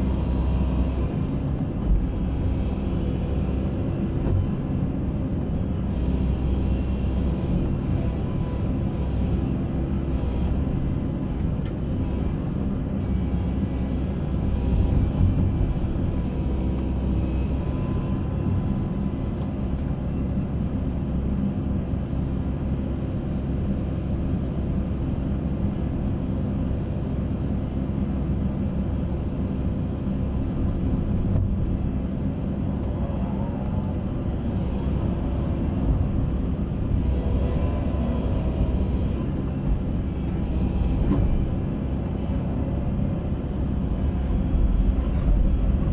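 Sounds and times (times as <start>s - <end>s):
concrete mixer engine rumbling: 32.5s - 45.9s.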